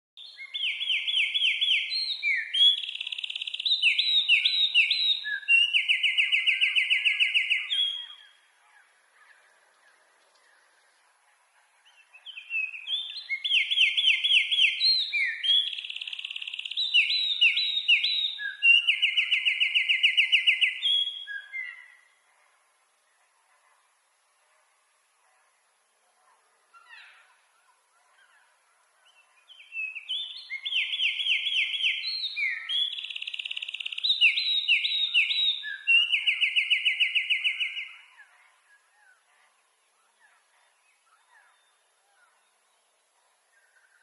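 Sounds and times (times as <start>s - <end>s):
wren singing trills: 0.2s - 8.4s, 12.2s - 21.9s, 29.2s - 38.1s.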